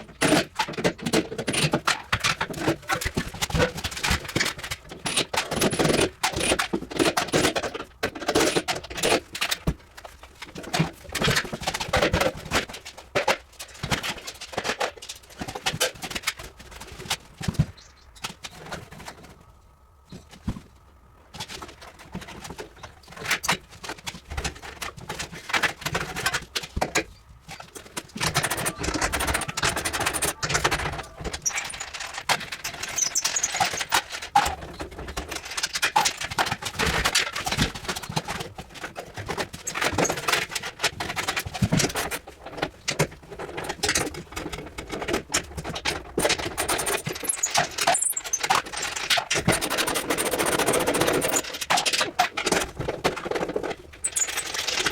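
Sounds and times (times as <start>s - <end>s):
metal clinks and scrapes of tools: 28.2s - 34.3s, 54.0s - 54.9s.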